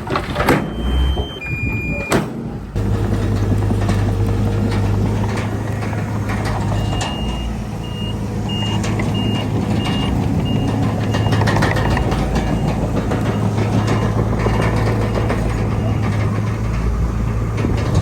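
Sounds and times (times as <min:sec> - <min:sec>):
diesel engine droning: 0:00.0 - 0:18.0
machinery knocks and clanks: 0:00.0 - 0:18.0
reversing alarm beeping: 0:00.6 - 0:02.3, 0:06.6 - 0:16.1.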